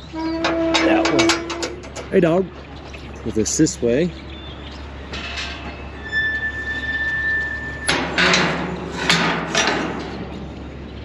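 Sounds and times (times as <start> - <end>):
loud knocks and clatter: 7.9 - 10.7.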